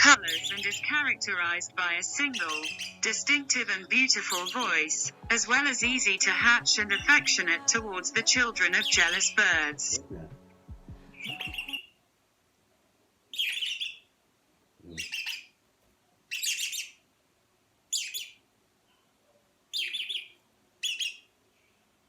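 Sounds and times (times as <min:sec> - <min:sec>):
parrot warbling chirps: 0:00.0 - 0:05.7, 0:11.2 - 0:11.9, 0:13.3 - 0:14.0, 0:15.0 - 0:15.5, 0:16.3 - 0:17.0, 0:17.9 - 0:18.4, 0:19.7 - 0:21.3.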